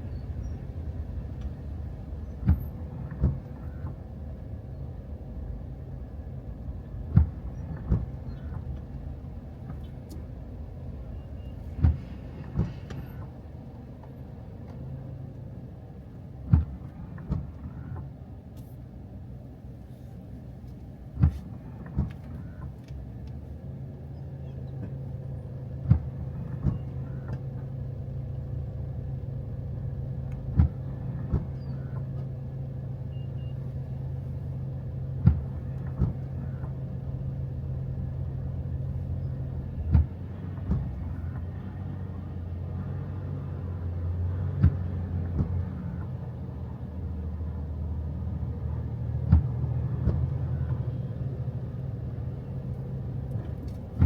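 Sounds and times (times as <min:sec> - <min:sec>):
car driving from inside cabin: 0:00.0 - 0:54.0.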